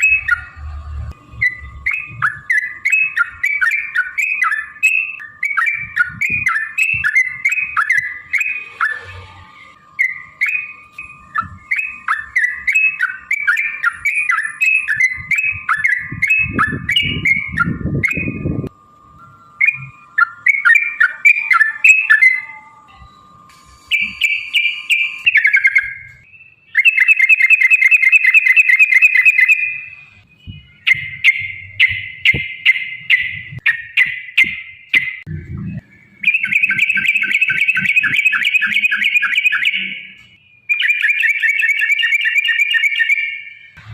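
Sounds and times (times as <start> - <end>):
bulbul singing chattering phrases: 23.9 - 40.2.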